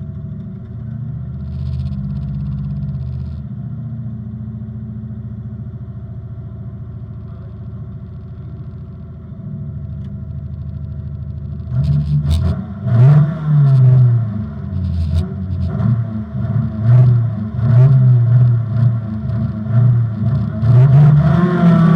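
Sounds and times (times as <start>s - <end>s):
rally car engine revving: 11.4s - 21.9s.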